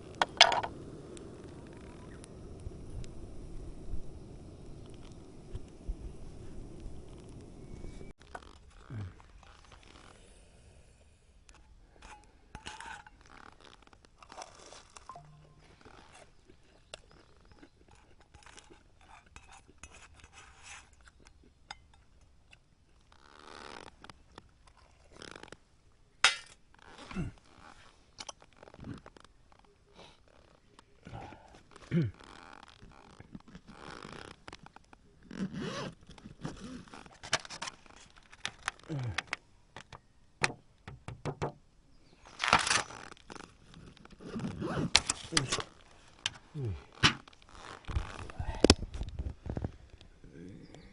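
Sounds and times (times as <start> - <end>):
rustling scrape: 18.5 - 21.0.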